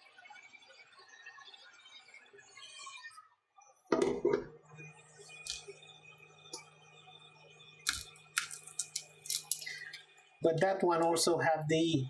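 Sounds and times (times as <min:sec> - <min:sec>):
faint steady hum: 0:04.0 - 0:12.0.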